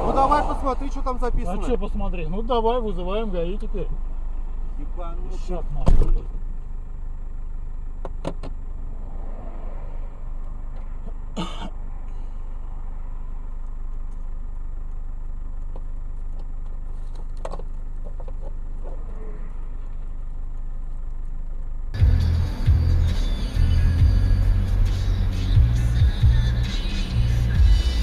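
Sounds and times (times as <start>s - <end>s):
car engine hum from inside: 0.0s - 28.0s
music with a heavy beat: 22.0s - 28.0s.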